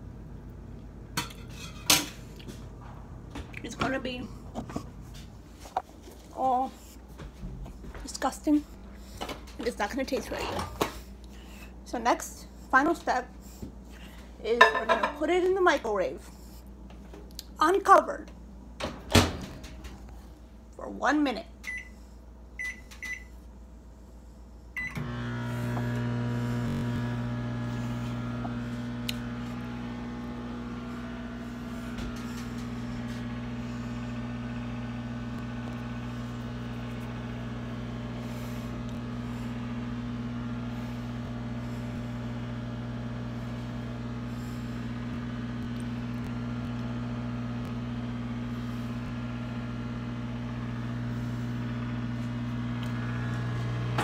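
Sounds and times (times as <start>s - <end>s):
microwave oven humming: 0.0s - 12.1s, 18.3s - 20.6s, 24.6s - 54.0s
microwave keypad beep: 21.7s - 21.9s, 22.6s - 23.3s, 24.8s - 25.0s.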